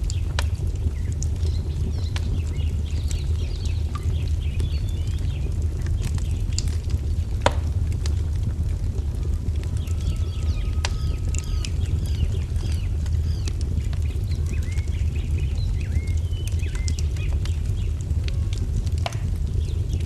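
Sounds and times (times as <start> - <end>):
wood fire crackling: 0.0 - 20.0
birds chirping: 9.8 - 18.0.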